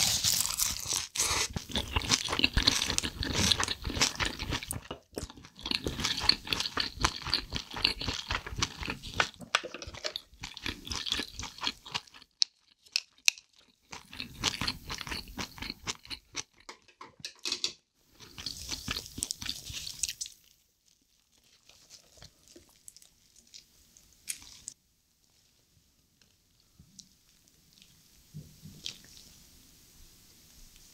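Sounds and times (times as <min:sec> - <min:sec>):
wet crunchy chewing: 0:00.0 - 0:16.7.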